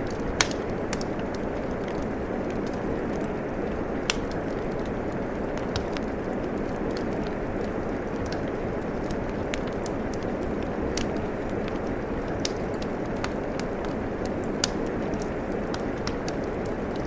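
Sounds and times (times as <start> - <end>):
steady rain: 0.0 - 17.0
wood fire crackling: 0.0 - 17.0.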